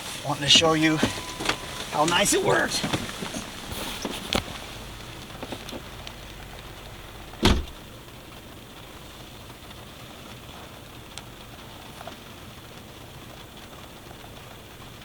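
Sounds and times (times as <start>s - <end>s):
rain hissing: 0.0s - 15.0s
loud thump: 7.4s - 7.8s.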